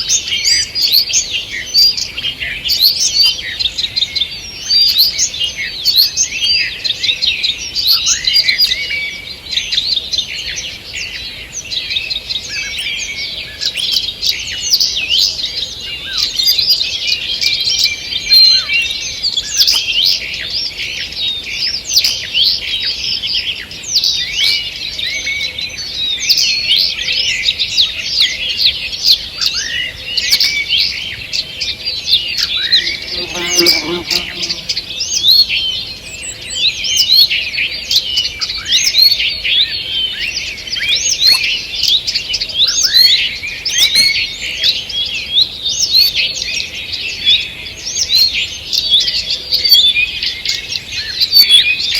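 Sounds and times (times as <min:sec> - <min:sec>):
songbirds singing: 0:30.1 - 0:37.3.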